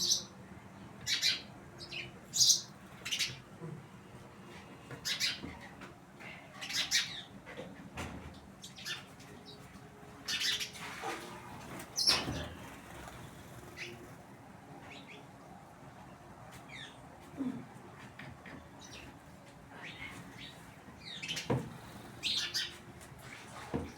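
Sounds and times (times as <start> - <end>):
birds chirping: 1.0 - 3.5, 5.0 - 5.8, 10.2 - 10.8, 11.5 - 14.3, 18.6 - 23.9.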